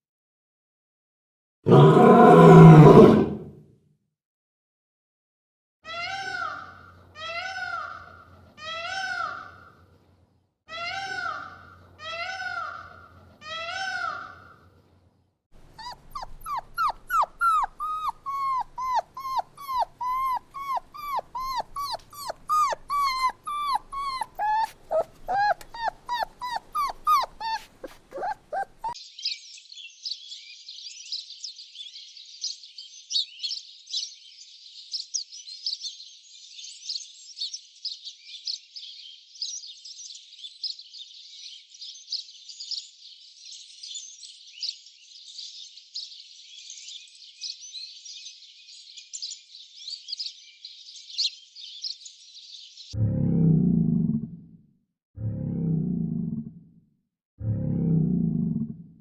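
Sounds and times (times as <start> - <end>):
drawn-out animal calls: 15.7 - 29.0
short high yelps: 15.8 - 29.0.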